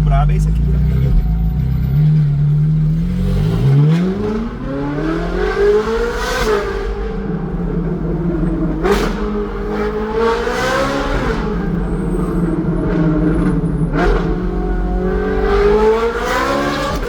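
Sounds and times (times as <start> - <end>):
sports car engine accelerating: 0.0 - 17.0.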